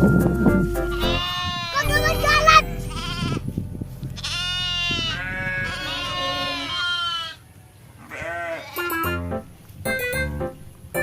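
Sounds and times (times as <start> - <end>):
goats bleating: 1.0 - 3.4, 4.2 - 7.4, 8.0 - 9.2.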